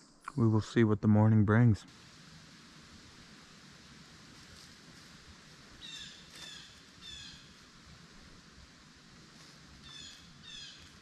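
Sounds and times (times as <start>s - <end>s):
bird calling: 5.7s - 7.7s, 9.8s - 11.0s.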